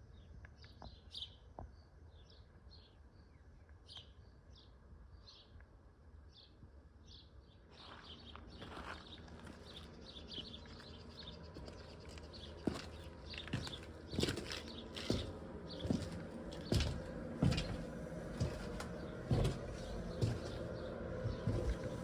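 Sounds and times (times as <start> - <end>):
outdoor background noise: 0.0 - 22.0
sharp thumps: 15.1 - 20.6.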